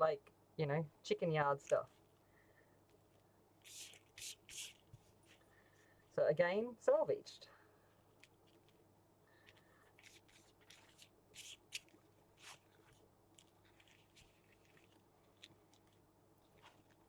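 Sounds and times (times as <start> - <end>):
paper rustling and crinkling: 9.4 - 17.0.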